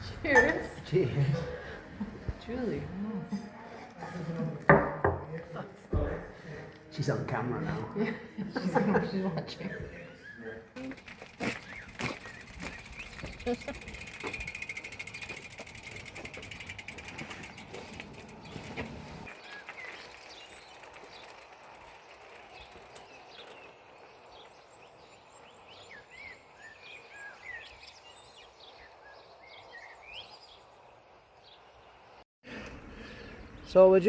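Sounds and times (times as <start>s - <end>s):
birds chirping and calling: 10.1s - 30.8s.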